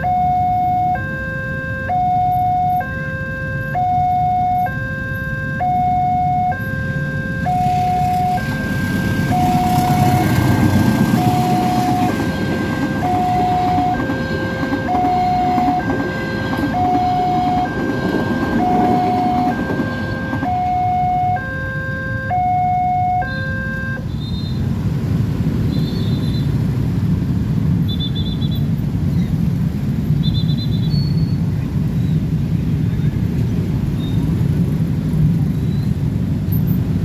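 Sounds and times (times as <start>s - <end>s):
two-tone level crossing alarm: 0.0s - 24.1s.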